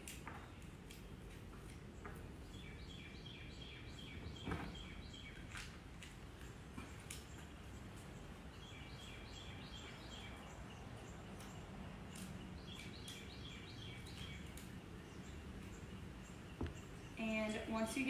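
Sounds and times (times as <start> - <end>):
songbird chirping: 0.1 - 18.0.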